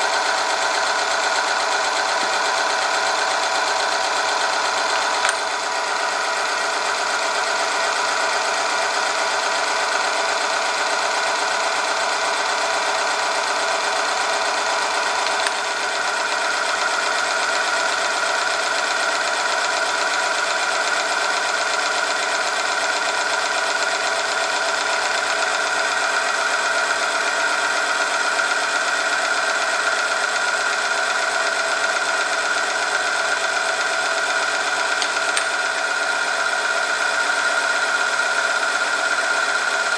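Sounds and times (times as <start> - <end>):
short machine click: 5.2 - 5.6.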